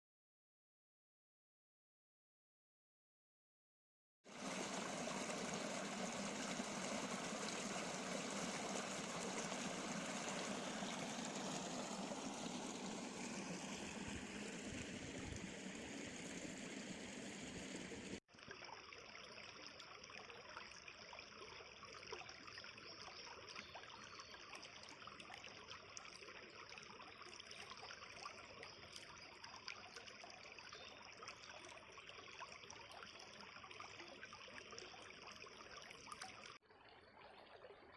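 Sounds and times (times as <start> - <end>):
river babbling over stones: 4.3 - 18.6.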